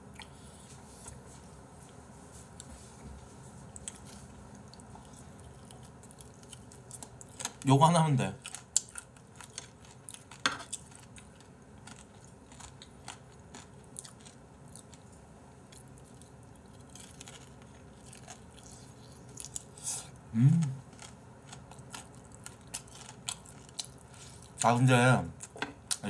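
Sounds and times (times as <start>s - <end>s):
biting and chewing crispy chicken: 3.8s - 15.1s, 15.7s - 20.2s, 20.8s - 24.8s
person humming: 20.3s - 20.8s.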